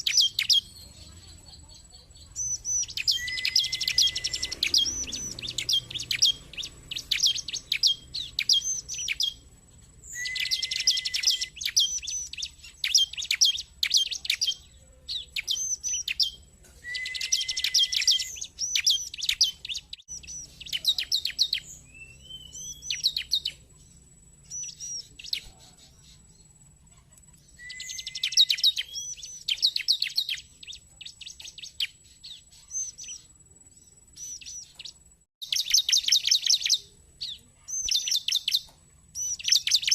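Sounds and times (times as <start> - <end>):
bird chirping and trilling: 0.0 - 39.9
rising whistle: 10.1 - 11.6, 16.8 - 18.3.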